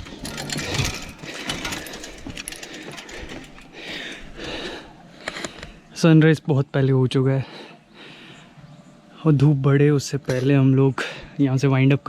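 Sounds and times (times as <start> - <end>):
footsteps on stone stairs: 0.0 - 4.8.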